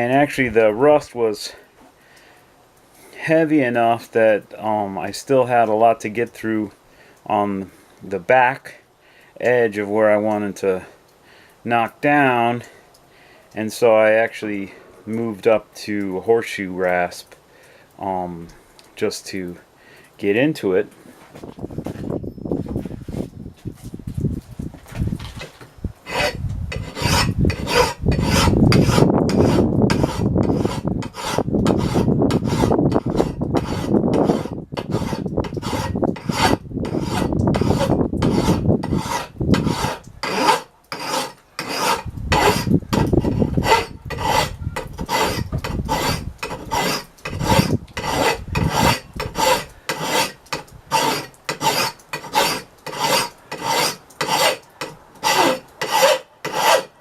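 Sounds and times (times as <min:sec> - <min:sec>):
rasp filing steel axe head: 0:26.1 - 0:57.0.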